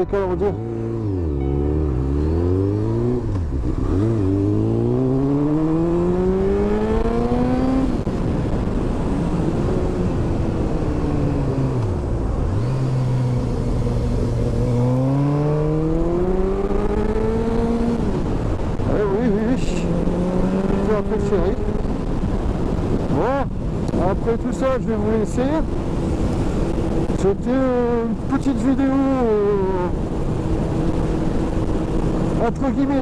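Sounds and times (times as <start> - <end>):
motorcycle engine accelerating: 0.0 - 23.2.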